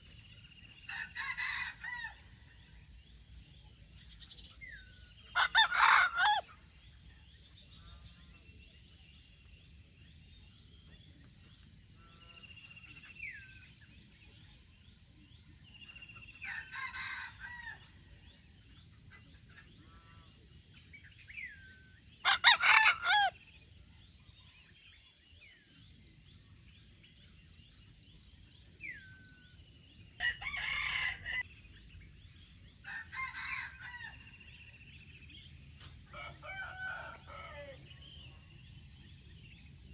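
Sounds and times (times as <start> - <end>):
rooster crowing: 5.4 - 6.4, 22.2 - 23.3, 30.2 - 31.4, 36.2 - 37.8.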